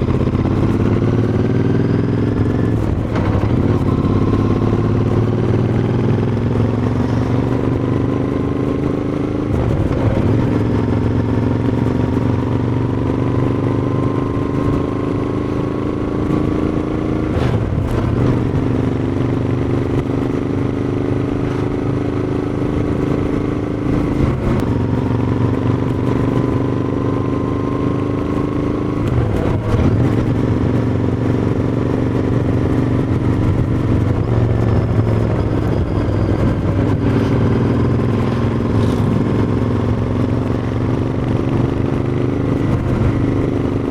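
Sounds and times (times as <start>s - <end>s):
motorcycle engine accelerating: 0.0s - 43.9s.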